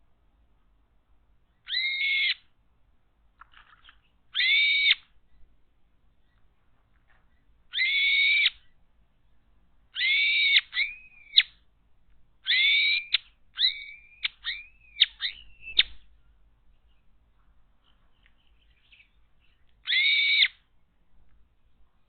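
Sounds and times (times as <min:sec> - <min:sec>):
bird whistled calls: 0:01.6 - 0:02.4, 0:04.3 - 0:05.0, 0:07.7 - 0:08.8, 0:10.0 - 0:11.6, 0:12.4 - 0:16.1, 0:18.6 - 0:20.6.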